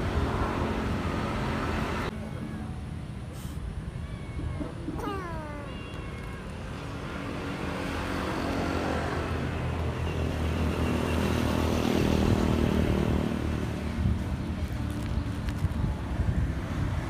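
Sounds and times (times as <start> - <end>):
vehicle engine passing by: 6.9 - 15.1.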